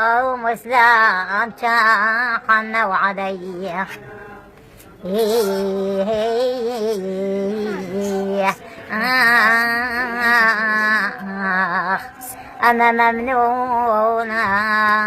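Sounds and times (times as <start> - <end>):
elderly woman singing: 0.0 - 15.0.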